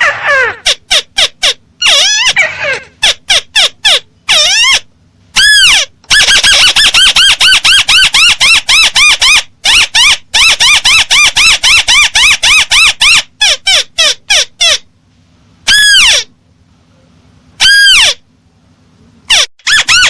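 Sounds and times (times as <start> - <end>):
crake calls: 19.3 - 20.0.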